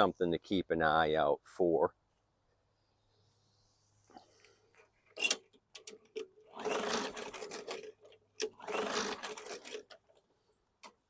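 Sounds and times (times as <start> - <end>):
mower recoil starter whirring: 5.2 - 11.0.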